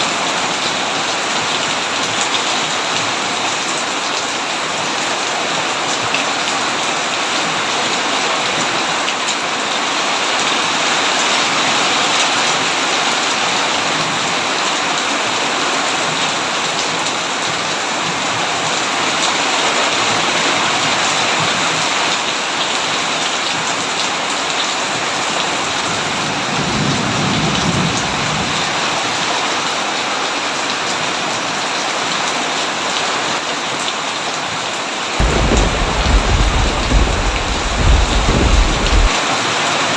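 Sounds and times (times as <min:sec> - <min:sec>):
heavy rain falling: 0:00.0 - 0:39.9
low rumble of thunder: 0:26.4 - 0:28.8, 0:35.2 - 0:39.1.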